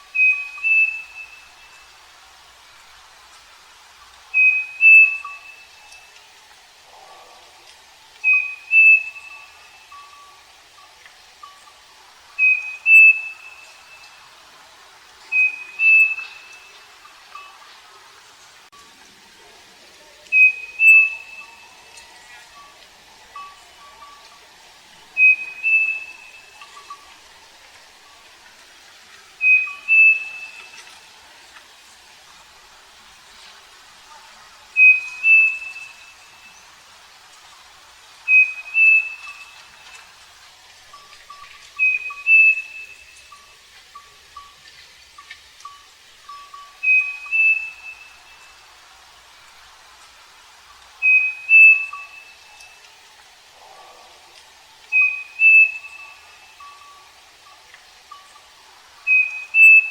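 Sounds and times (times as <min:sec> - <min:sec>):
bird singing two-note whistle: 0:00.1 - 0:01.8, 0:04.4 - 0:06.0, 0:08.2 - 0:10.2, 0:12.4 - 0:14.1, 0:15.3 - 0:17.5, 0:20.3 - 0:21.6, 0:25.2 - 0:26.9, 0:29.4 - 0:30.7, 0:34.8 - 0:36.6, 0:38.3 - 0:39.6, 0:41.8 - 0:43.3, 0:46.3 - 0:48.5, 0:51.0 - 0:52.8, 0:54.9 - 0:57.0, 0:59.1 - 0:59.9.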